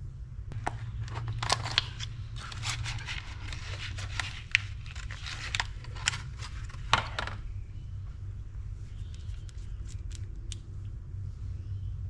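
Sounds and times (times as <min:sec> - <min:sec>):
steady low hum: 0:00.0 - 0:12.0
short scrapes and rustles: 0:00.7 - 0:07.2.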